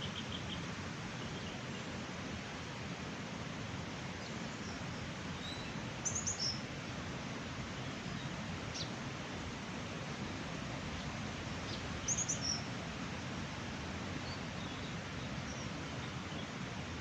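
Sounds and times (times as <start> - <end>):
rushing stream: 0.0 - 17.0
bird chirping: 5.4 - 6.6, 11.7 - 12.6.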